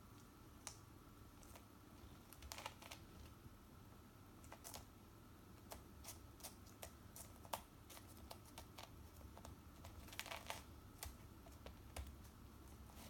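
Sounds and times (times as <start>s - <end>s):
kitten playing with twine: 5.6s - 13.0s.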